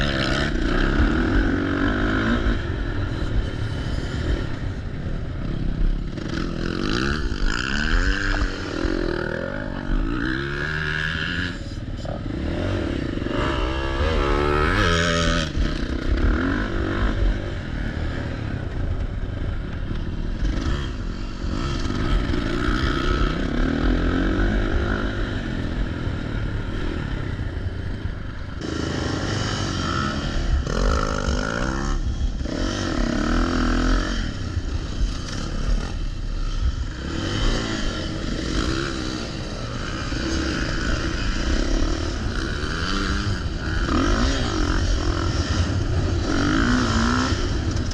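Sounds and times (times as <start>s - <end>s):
dirt bike engine revving: 0.0s - 18.9s, 19.5s - 47.9s.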